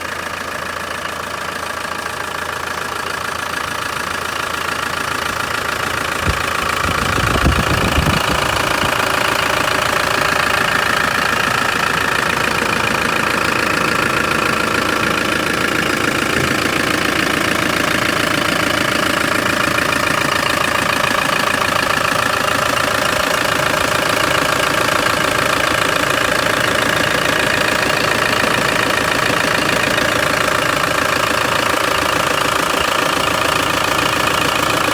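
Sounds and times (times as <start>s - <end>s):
diesel engine running: 0.0s - 34.9s
low thumps: 6.1s - 8.7s.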